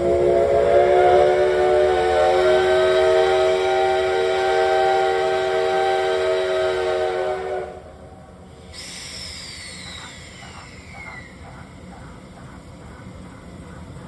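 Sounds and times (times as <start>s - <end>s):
steam locomotive whistle: 0.0s - 8.0s, 8.7s - 11.3s.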